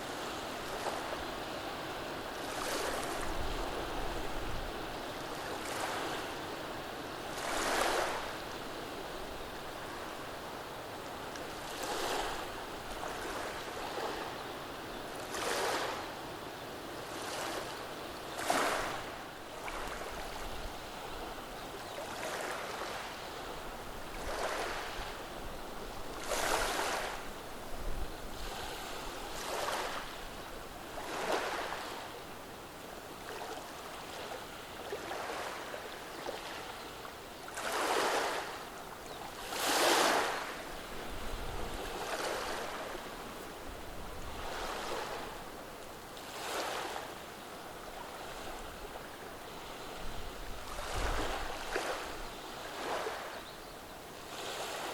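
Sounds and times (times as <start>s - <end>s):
waves washing over stones: 39.4s - 43.2s.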